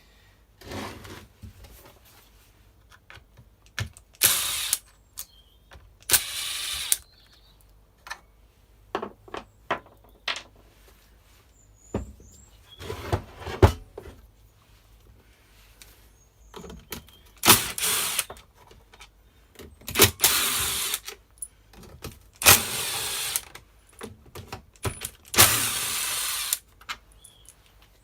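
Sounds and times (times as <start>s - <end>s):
power driver removing screws: 4.1s - 4.8s, 6.0s - 7.0s, 17.4s - 18.4s, 19.9s - 21.1s, 22.4s - 23.6s, 24.8s - 26.6s.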